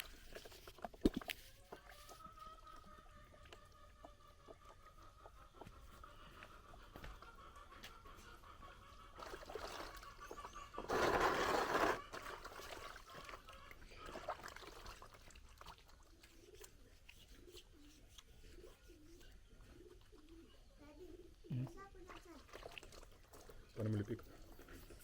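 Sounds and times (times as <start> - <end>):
water gush: 10.9 - 12.8
water trickling over hands: 12.2 - 17.1
dove cooing: 17.4 - 21.8.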